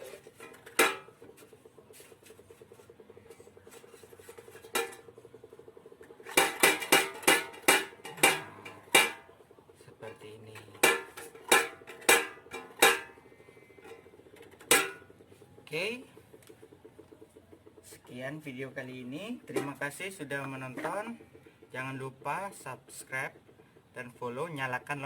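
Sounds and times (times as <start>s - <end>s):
metallic clanks of tin cans: 0.0s - 1.2s, 4.2s - 5.1s, 6.2s - 9.3s, 10.6s - 13.2s, 13.8s - 15.1s.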